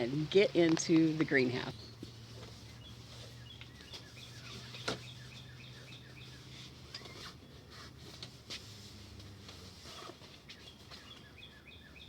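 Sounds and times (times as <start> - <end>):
small bird chirping: 2.7 - 7.6, 10.5 - 12.0.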